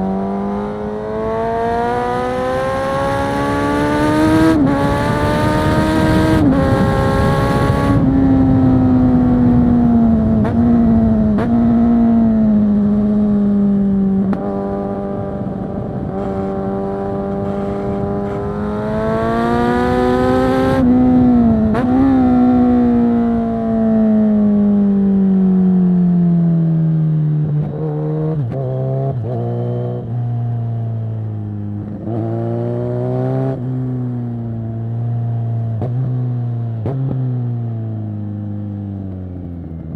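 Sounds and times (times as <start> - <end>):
motorcycle engine revving: 0.0 - 39.9
wind noise: 0.1 - 25.1.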